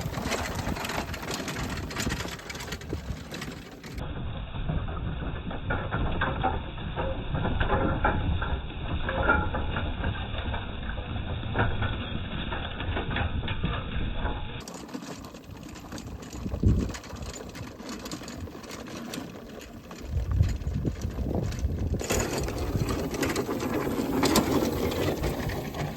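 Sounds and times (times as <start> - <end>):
farm machine engine rumbling: 0.0 - 25.9
rattling clicks: 13.6 - 25.9
wind on microphone: 16.0 - 17.8, 20.0 - 23.5.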